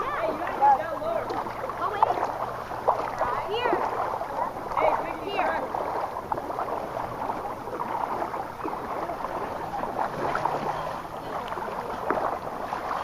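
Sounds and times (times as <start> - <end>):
people wading through floodwater: 0.0 - 13.0.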